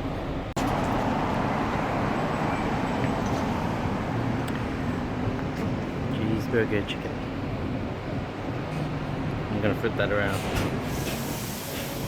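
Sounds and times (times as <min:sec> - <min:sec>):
city traffic noise: 0:00.0 - 0:12.0.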